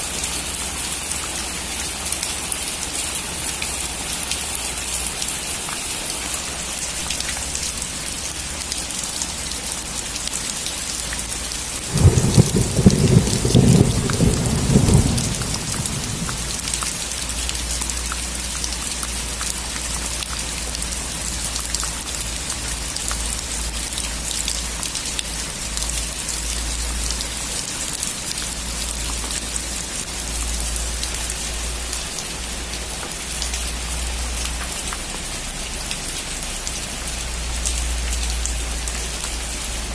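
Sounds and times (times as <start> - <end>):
heavy rain: 0.0 - 39.9
thunder rumbling: 11.8 - 16.9.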